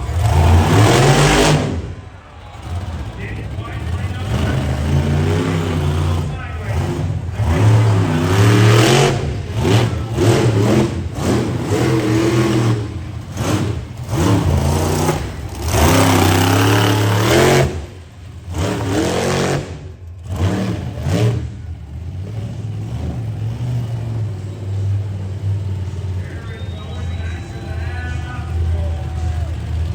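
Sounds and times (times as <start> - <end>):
monster truck engine revving: 0.0 - 29.9.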